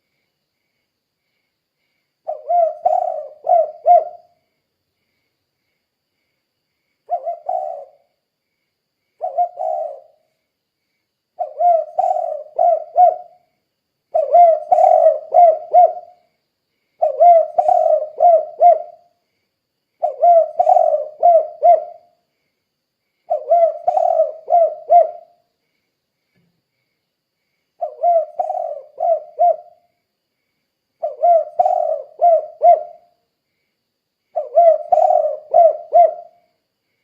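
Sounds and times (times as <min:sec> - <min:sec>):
dove cooing: 0:02.3 - 0:04.4, 0:07.1 - 0:08.1, 0:09.2 - 0:10.2, 0:11.4 - 0:13.4, 0:14.1 - 0:16.2, 0:17.0 - 0:19.1, 0:20.0 - 0:22.1, 0:23.3 - 0:25.4, 0:27.8 - 0:29.8, 0:31.0 - 0:33.1, 0:34.4 - 0:36.4.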